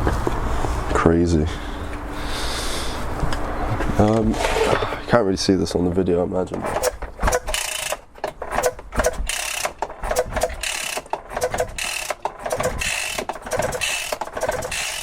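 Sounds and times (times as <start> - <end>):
engine starter cranking: 6.5 - 15.0.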